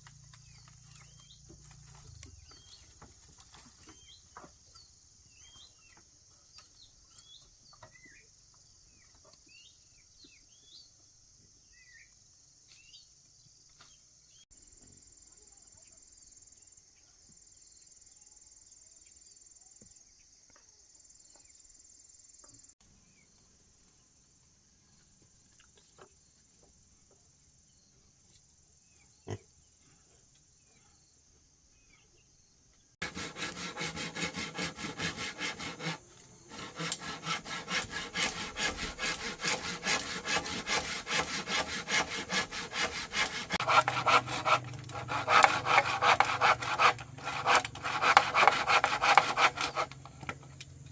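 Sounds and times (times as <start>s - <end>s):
faint insects chirping: 0.0s - 33.0s
hand saw cutting wood: 33.0s - 50.4s.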